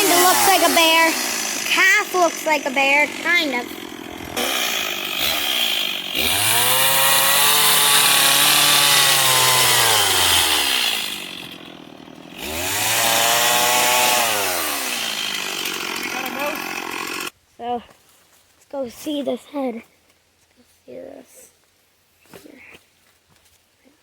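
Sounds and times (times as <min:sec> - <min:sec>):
chainsaw cutting wood: 0:00.0 - 0:17.4.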